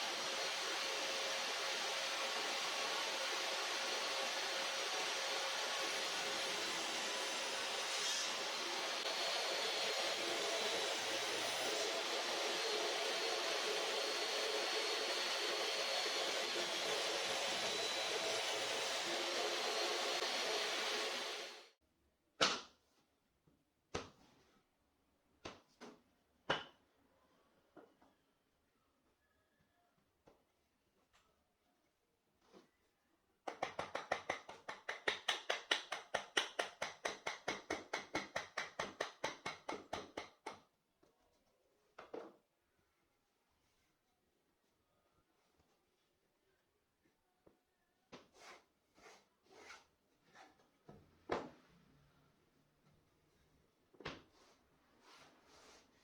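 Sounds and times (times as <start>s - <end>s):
power tool motor running: 0.0s - 21.7s.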